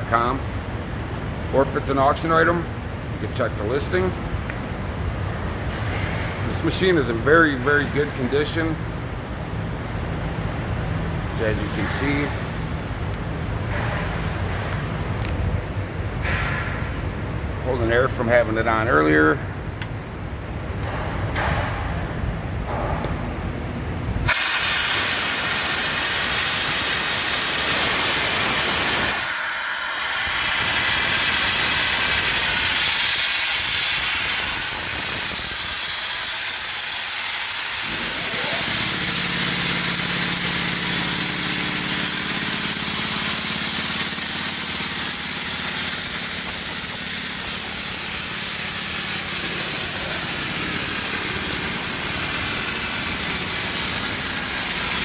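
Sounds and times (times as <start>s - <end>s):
air compressor humming: 24.2s - 55.0s
compressed air hissing: 24.3s - 55.0s.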